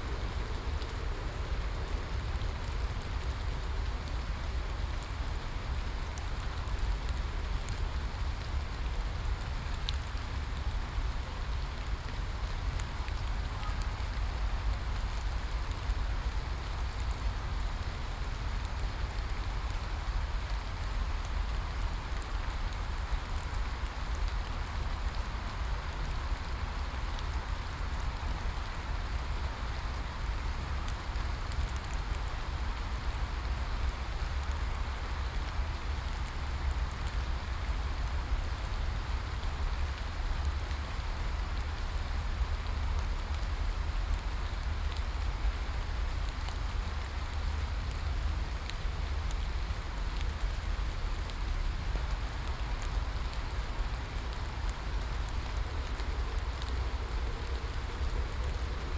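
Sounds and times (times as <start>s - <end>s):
rain drop ticks: 0.1s - 58.9s
rain hissing: 12.2s - 58.9s.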